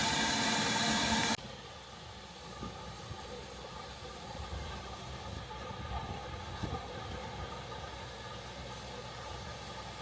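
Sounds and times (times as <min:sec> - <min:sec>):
steam train rumbling past: 0:00.0 - 0:01.4.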